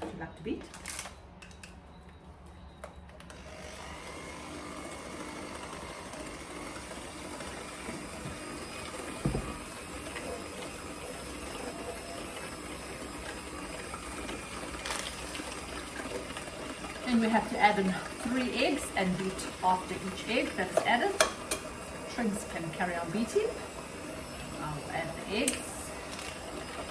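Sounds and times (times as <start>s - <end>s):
electric hand mixer running: 3.3s - 26.9s
knock: 9.2s - 9.6s.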